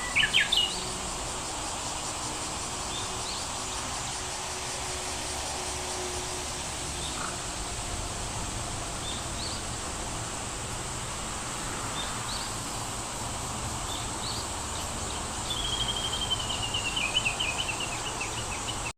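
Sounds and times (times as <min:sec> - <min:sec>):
small birds chirping: 0:00.0 - 0:01.0, 0:13.8 - 0:18.9
steady outdoor rush: 0:00.0 - 0:18.9.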